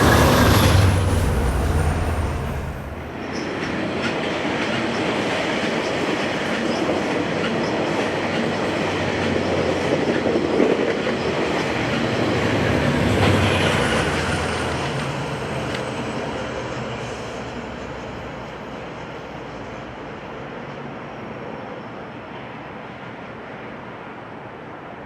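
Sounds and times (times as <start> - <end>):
wheels clattering over rails: 0.0 - 3.4
locomotive engine drone: 0.0 - 3.6.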